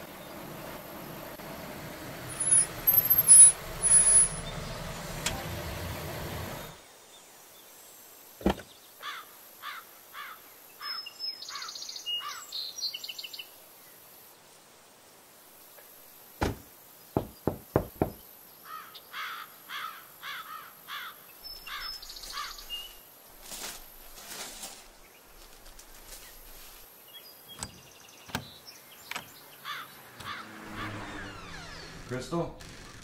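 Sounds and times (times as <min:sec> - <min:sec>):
sharp thumps: 0:16.4 - 0:18.2
bird chirping: 0:21.3 - 0:23.0, 0:27.0 - 0:30.4.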